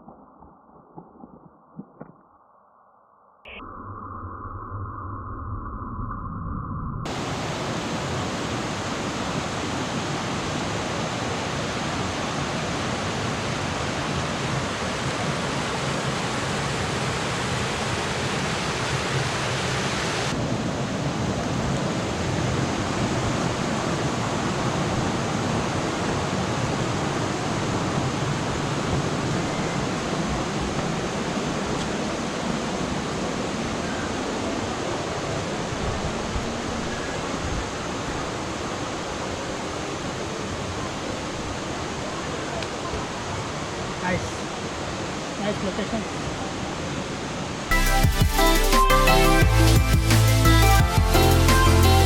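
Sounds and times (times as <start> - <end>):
waterfall rushing over rocks: 7.1 - 50.5.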